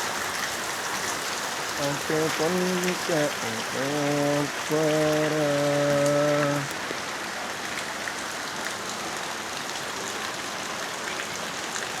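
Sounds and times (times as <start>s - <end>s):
steady rain falling: 0.0s - 12.0s
raindrops ticking: 1.8s - 7.0s.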